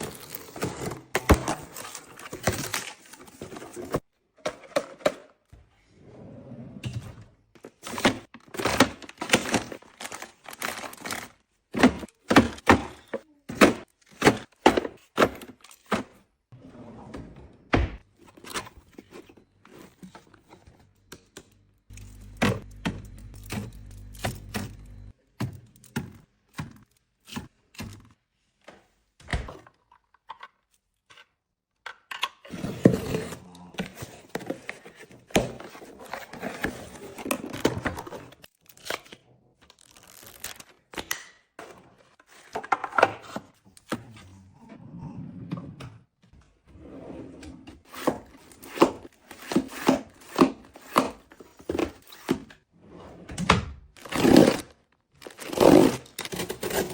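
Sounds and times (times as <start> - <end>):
packaging crinkling and tearing: 9.0 - 11.4, 39.6 - 41.1, 54.0 - 56.9.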